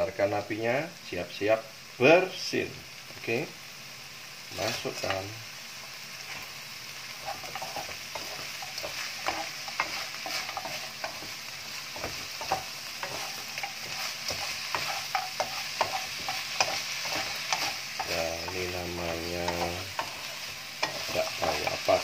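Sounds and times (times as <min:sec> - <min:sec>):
fish sizzling in a wok: 0:00.0 - 0:22.0
wooden spatula scraping a pan: 0:07.2 - 0:22.0.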